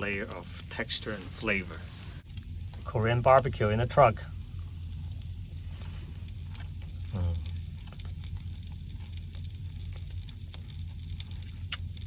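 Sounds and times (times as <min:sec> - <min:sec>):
beef sizzling in a pan: 0:00.0 - 0:12.0
steady low hum: 0:00.0 - 0:12.0
person saying mm: 0:07.1 - 0:07.5.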